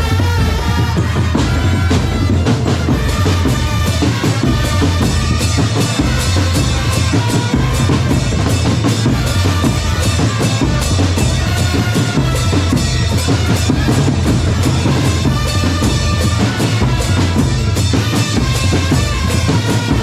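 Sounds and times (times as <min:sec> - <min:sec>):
bass drum beats: 0:00.0 - 0:20.0.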